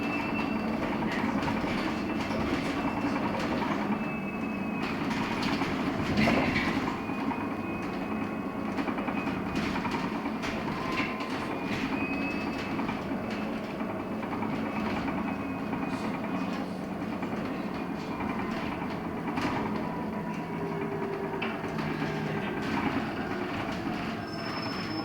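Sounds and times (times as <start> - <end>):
road noise: 15.6 - 25.0.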